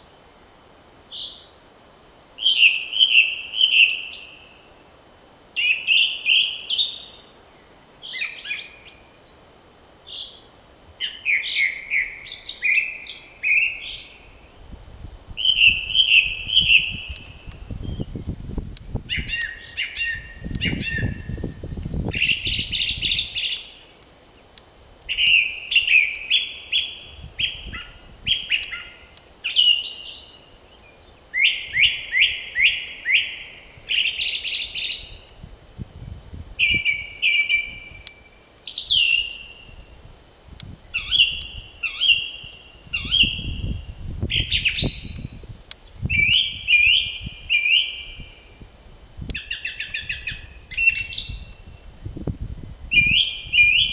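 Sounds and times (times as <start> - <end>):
songbirds chirping and trilling: 2.4 - 53.9
low wind rumble: 13.6 - 29.5, 30.4 - 53.9.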